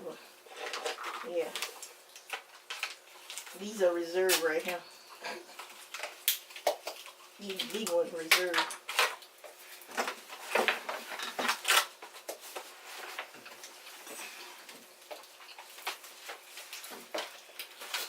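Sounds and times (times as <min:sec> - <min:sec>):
seafood shells cracking: 0:00.9 - 0:03.6, 0:05.5 - 0:10.1, 0:11.4 - 0:12.4.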